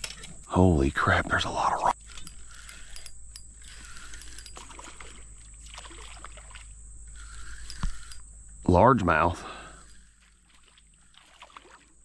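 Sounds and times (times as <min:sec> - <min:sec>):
paddle strokes in water: 0:10.1 - 0:12.0.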